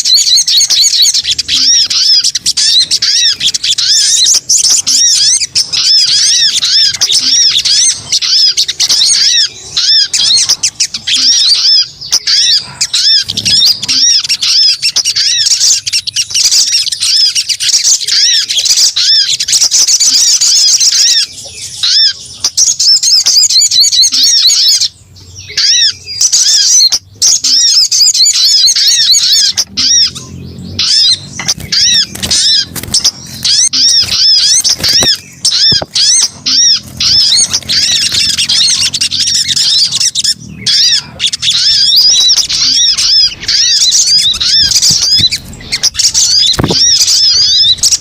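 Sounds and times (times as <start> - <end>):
bird lure call chirps: 25.5 - 48.0.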